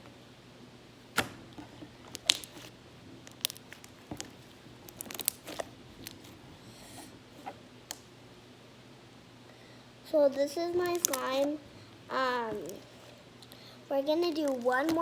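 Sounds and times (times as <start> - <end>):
slime squished by hand: 1.1 - 6.4.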